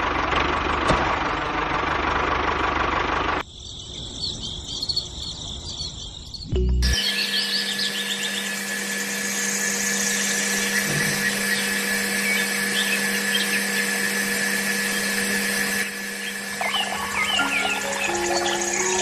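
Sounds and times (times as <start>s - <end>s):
small electric motor whining: 6.8s - 19.0s.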